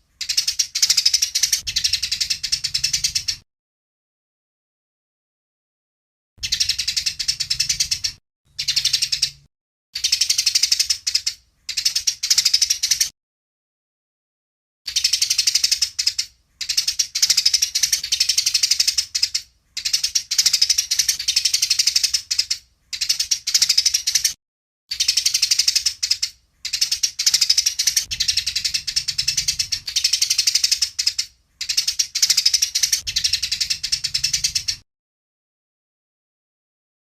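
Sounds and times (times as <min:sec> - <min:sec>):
sparrows chattering: 0:00.0 - 0:03.4, 0:06.4 - 0:13.1, 0:14.9 - 0:34.8.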